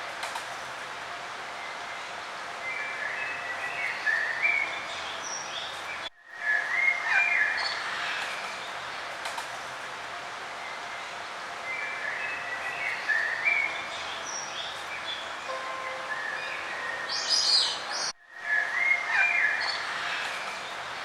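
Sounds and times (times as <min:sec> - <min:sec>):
steady outdoor hiss: 0:00.0 - 0:21.0
songbirds chirping: 0:10.4 - 0:21.0.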